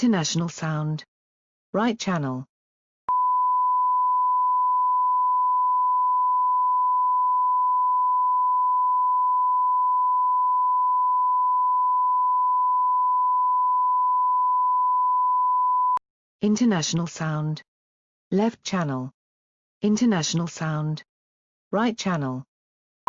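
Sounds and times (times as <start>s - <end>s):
steady sine tone: 3.1s - 16.0s.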